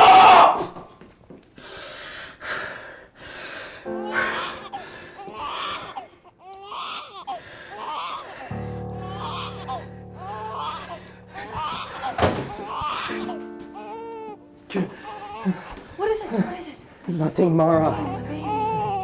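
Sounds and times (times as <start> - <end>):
gasping sobs: 1.7 - 16.7, 17.8 - 19.0
infant crying and wailing: 3.9 - 16.6, 17.7 - 19.0
infant screaming: 4.1 - 14.4, 17.8 - 19.0.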